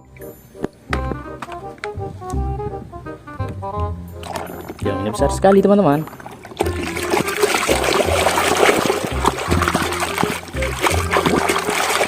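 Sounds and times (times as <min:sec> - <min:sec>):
water splashing and trickling: 0:04.1 - 0:12.0.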